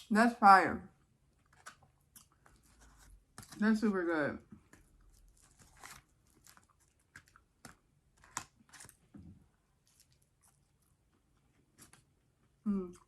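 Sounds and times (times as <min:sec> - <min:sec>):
chewing food: 0:01.3 - 0:03.6, 0:04.6 - 0:09.2, 0:09.8 - 0:13.0.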